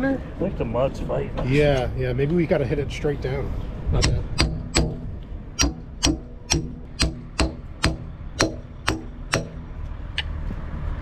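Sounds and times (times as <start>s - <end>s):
hammer striking steel: 4.0s - 9.8s.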